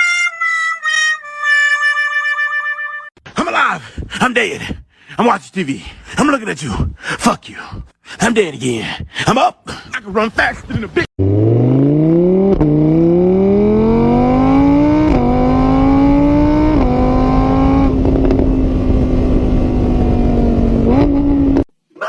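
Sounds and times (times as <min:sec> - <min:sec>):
car engine accelerating: 0:11.2 - 0:21.7.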